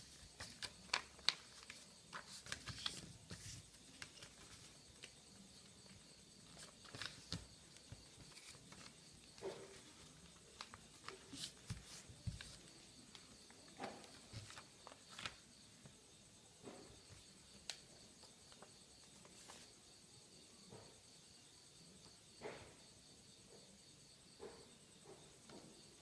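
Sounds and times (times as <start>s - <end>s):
paper rustling: 0.0s - 15.4s, 18.5s - 19.7s.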